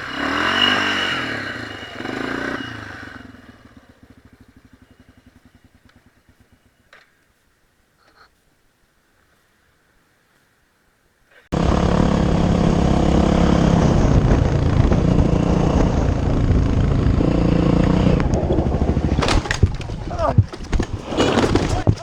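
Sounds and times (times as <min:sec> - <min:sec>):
motorcycle engine running hard: 0:00.0 - 0:06.8, 0:11.5 - 0:22.0.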